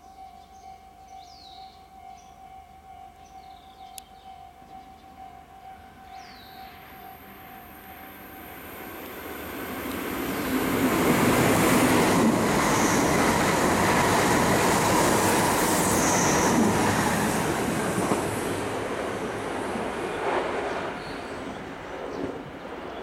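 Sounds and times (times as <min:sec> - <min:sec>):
high-speed train passing: 0:04.6 - 0:23.0.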